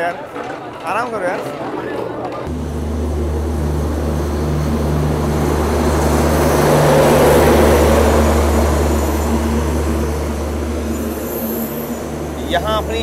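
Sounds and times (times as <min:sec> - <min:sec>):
train coaches rolling: 0:02.2 - 0:13.0
low engine hum: 0:02.5 - 0:13.0.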